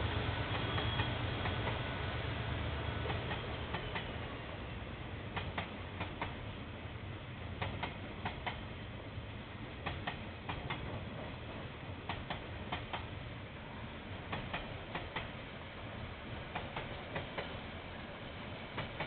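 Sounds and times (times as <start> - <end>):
low train rumble: 0.0 - 19.0
train wheels clicking on rail joints: 0.3 - 1.9, 3.0 - 4.3, 5.2 - 6.6, 7.5 - 8.8, 9.7 - 13.2, 14.2 - 15.5, 16.2 - 19.0.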